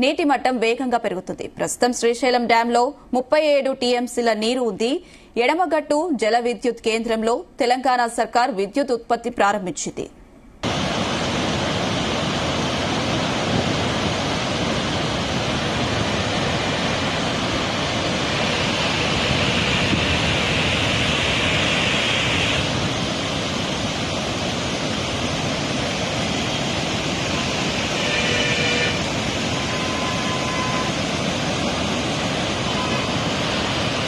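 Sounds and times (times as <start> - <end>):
floodwater rushing: 10.6 - 34.0.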